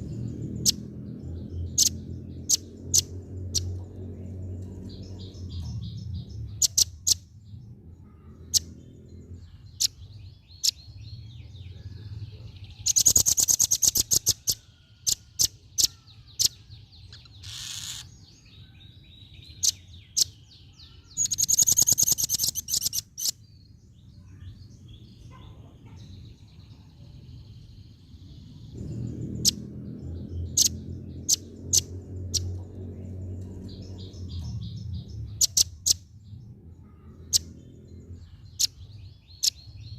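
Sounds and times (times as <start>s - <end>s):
low background rumble: 0.0s - 12.9s, 23.5s - 39.9s
nuthatch calling: 0.2s - 3.8s, 12.8s - 18.2s, 19.5s - 23.4s, 33.5s - 36.0s.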